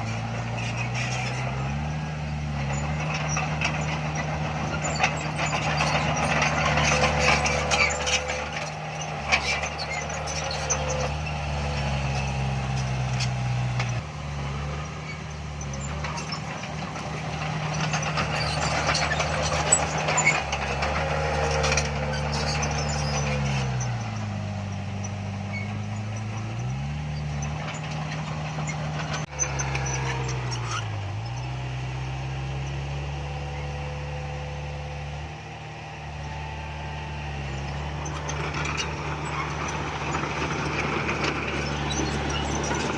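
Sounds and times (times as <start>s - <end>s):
diesel machinery engine running: 0.0s - 42.9s
metallic clanks and rattles: 2.5s - 14.0s, 15.1s - 31.5s.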